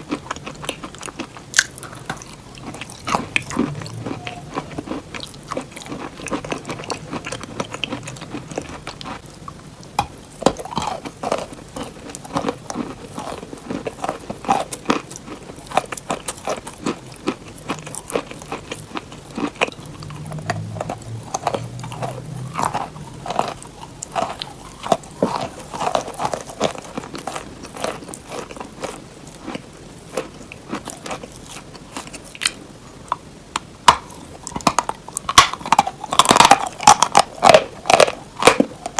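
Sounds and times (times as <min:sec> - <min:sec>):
wet mouth sounds: 0:00.0 - 0:11.6
chewing crunchy cheese: 0:00.0 - 0:38.9.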